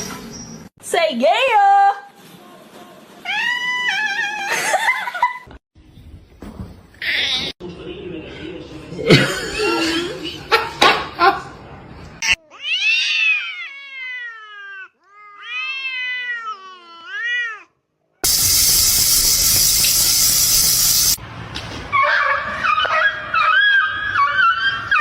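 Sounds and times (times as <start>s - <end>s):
cat yowling meows: 12.5s - 17.6s.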